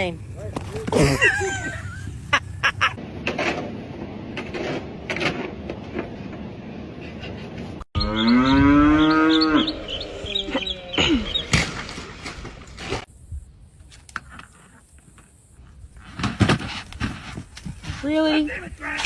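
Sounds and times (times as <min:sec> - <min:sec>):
cow mooing: 0:08.0 - 0:11.2.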